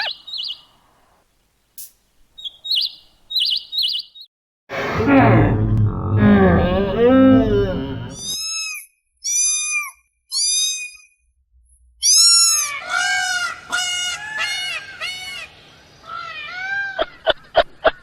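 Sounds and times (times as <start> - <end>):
animal calls rising and falling: 4.7 - 8.6.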